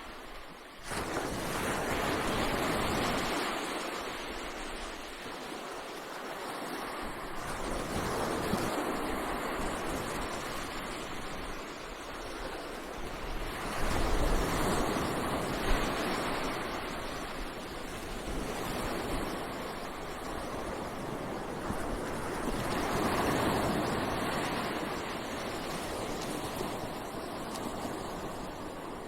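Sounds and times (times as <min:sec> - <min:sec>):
waves breaking on a beach: 0:00.0 - 0:29.0.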